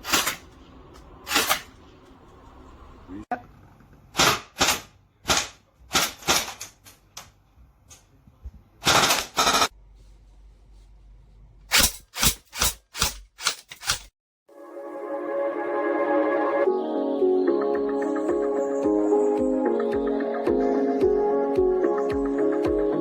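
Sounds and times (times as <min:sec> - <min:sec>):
airsoft gun shots: 0:00.0 - 0:00.4, 0:01.3 - 0:01.7, 0:04.2 - 0:06.6.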